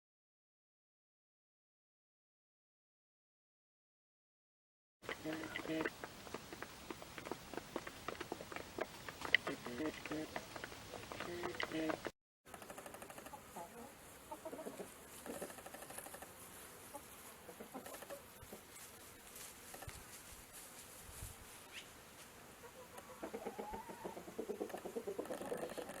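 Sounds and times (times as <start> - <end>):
chickens clucking: 5.0 - 19.0, 22.6 - 26.0.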